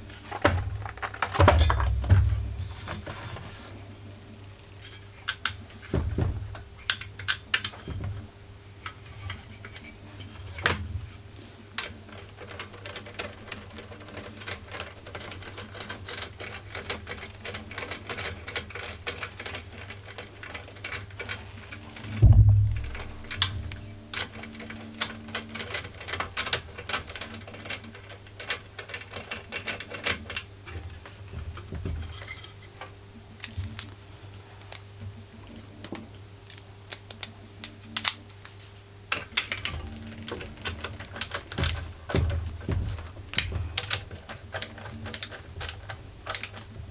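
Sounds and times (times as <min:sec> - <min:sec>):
loud dull thump: 0:22.2 - 0:23.7.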